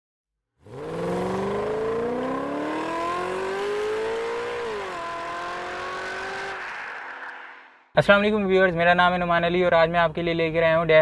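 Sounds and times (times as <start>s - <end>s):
car engine accelerating: 0.6s - 7.8s.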